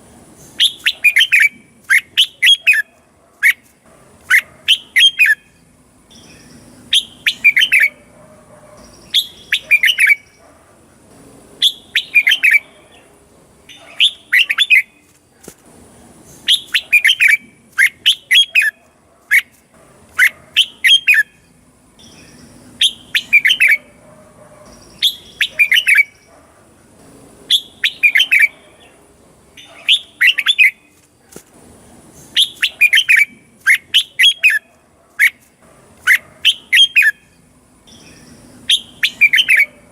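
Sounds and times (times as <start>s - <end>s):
bird singing whistled phrases: 0.6s - 3.6s, 6.1s - 8.0s, 8.9s - 10.4s, 11.6s - 12.7s, 16.4s - 18.8s, 20.2s - 21.4s, 22.0s - 23.9s, 24.8s - 26.2s, 27.5s - 28.5s, 29.6s - 30.8s, 32.3s - 35.4s, 37.9s - 39.7s.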